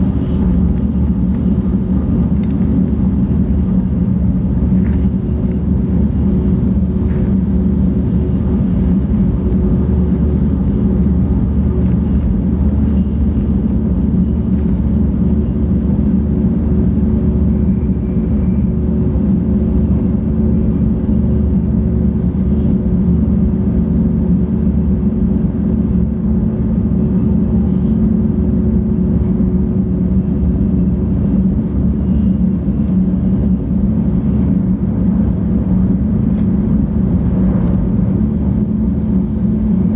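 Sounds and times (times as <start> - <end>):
train cabin rumble: 0.0 - 18.4
faint constant hum: 0.0 - 39.9.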